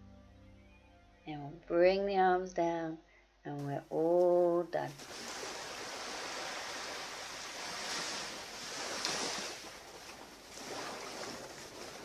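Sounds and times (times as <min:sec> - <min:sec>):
sea waves breaking on beach: 0:04.9 - 0:12.0.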